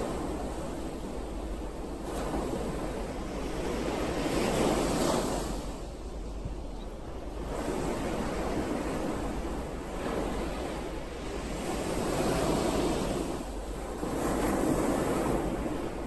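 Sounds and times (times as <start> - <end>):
ocean waves: 0.0 - 16.0.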